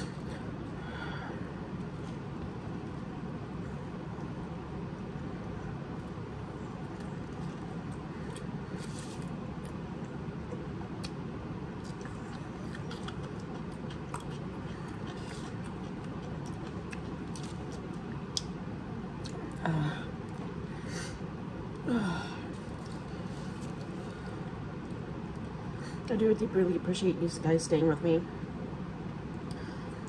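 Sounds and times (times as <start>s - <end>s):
low background hum: 0.0s - 30.0s
wet chewing mouth clicks: 11.9s - 18.5s.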